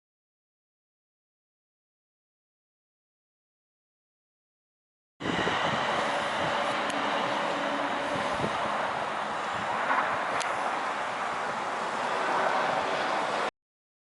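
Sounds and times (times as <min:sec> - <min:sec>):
vehicle passing: 0:05.2 - 0:13.5.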